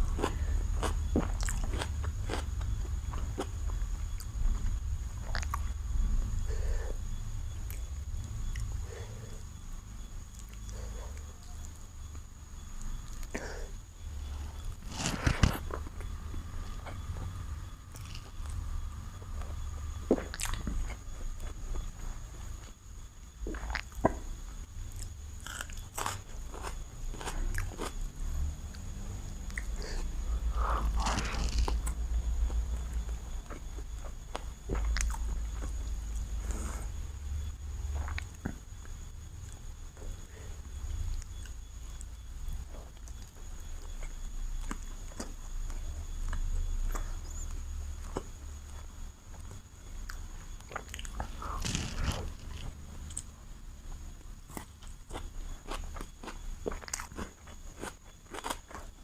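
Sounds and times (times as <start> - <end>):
small crunches: 0.0 - 5.6, 14.3 - 17.3, 17.9 - 18.6, 24.9 - 28.0, 30.7 - 36.7, 49.4 - 53.3, 54.4 - 59.0
wet chewing and biting food: 0.0 - 5.7, 19.4 - 21.6, 30.8 - 32.0, 50.6 - 53.3
close chewing with mouth smacks: 0.1 - 5.7, 20.1 - 21.6, 54.5 - 59.0.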